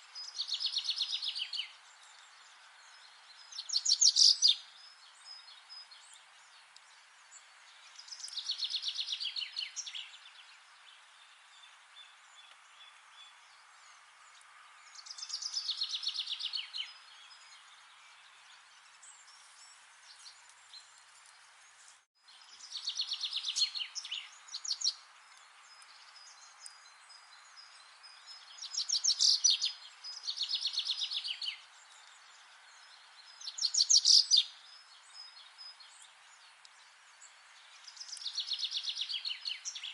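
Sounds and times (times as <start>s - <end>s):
songbird trilling: 28.6s - 31.6s.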